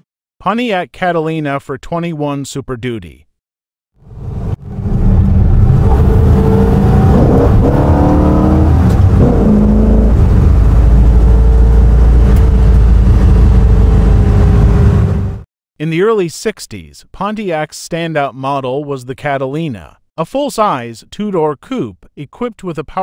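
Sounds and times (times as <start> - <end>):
car engine accelerating: 4.1 - 15.4.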